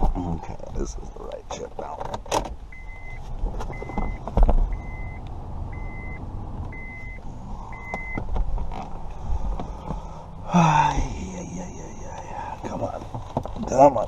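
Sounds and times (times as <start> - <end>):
handling knocks and clicks: 1.5 - 2.6, 7.9 - 10.0, 12.8 - 13.8
high electronic beep: 2.7 - 8.2.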